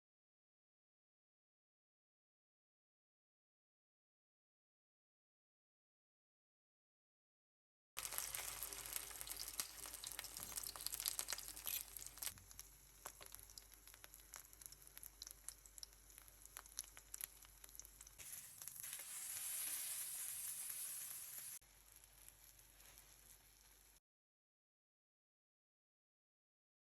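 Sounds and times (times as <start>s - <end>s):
food sizzling in a pan: 8.0s - 24.0s.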